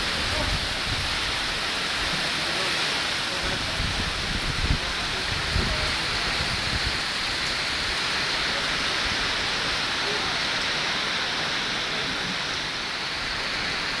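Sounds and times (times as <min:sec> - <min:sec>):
wind buffeting: 0:00.0 - 0:02.0, 0:03.4 - 0:09.6
heavy rain falling: 0:00.0 - 0:14.0.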